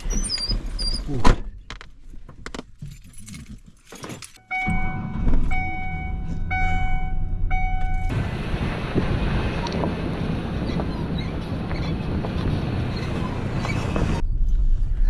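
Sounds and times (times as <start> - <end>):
loud low rumble: 4.7 - 15.0
wind noise on microphone: 8.0 - 15.0.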